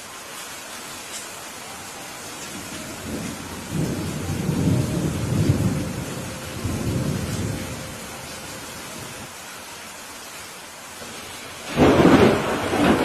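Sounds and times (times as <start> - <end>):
steady rain hiss: 0.0 - 13.0
thunder rumbling: 2.4 - 9.3, 11.6 - 13.0.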